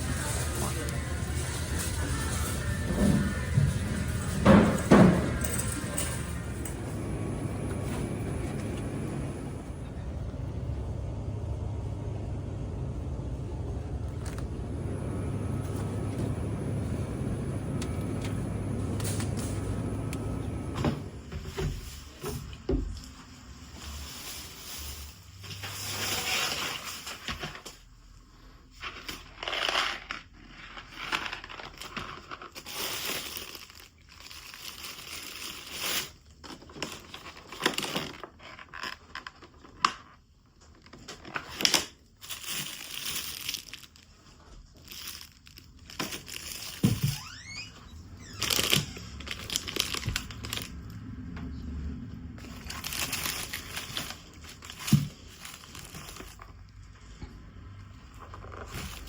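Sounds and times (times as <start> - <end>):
rustling and crinkling handling noises: 14.1 - 47.4, 48.0 - 59.0.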